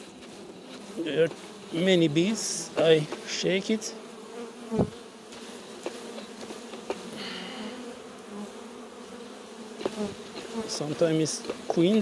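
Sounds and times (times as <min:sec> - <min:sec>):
bees buzzing: 0:00.0 - 0:12.0
thump: 0:04.8 - 0:05.0.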